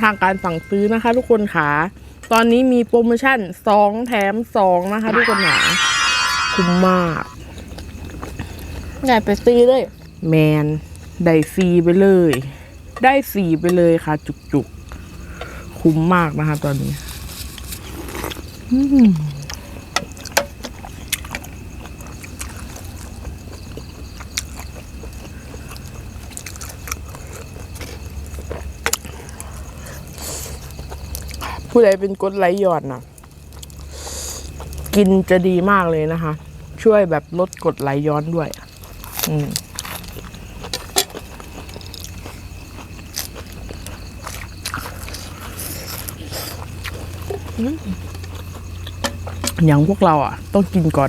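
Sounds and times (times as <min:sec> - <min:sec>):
chewing and biting: 0:20.7 - 0:29.1, 0:38.8 - 0:49.6.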